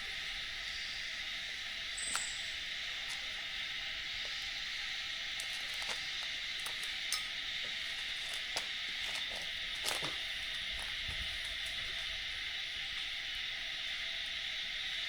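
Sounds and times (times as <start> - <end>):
high-pitched hiss: 0.0 - 15.0
faint clicks and ticks: 5.3 - 10.2.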